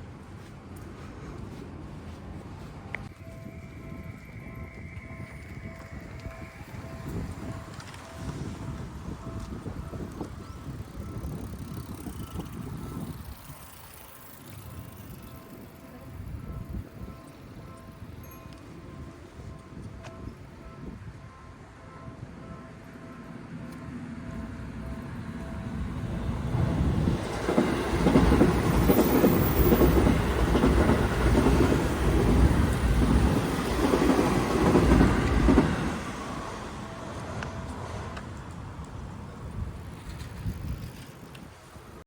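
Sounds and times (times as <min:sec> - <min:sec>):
train clattering on rails: 0:23.6 - 0:41.5.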